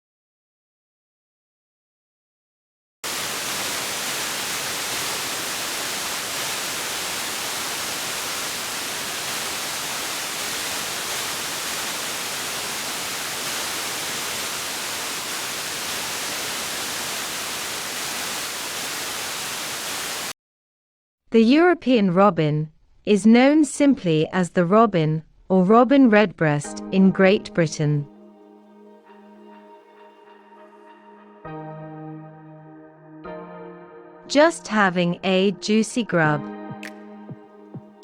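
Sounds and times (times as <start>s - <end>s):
white noise static hiss: 3.1s - 20.3s.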